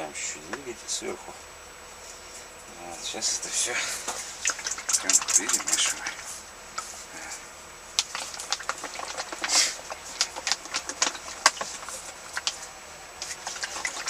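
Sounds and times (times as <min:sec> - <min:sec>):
liquid stirred in a container: 0:03.4 - 0:14.0.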